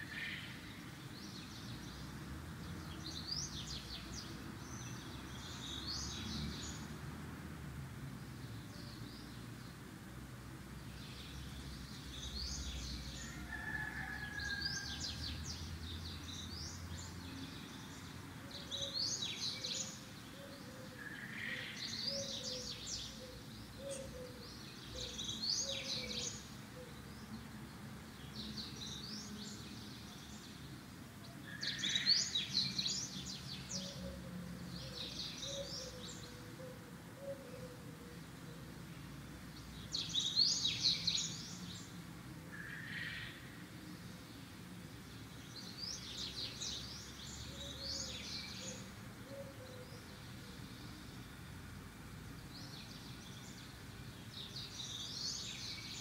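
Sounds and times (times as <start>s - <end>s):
small birds chirping: 15.8s - 27.4s, 38.2s - 42.2s, 43.9s - 56.0s.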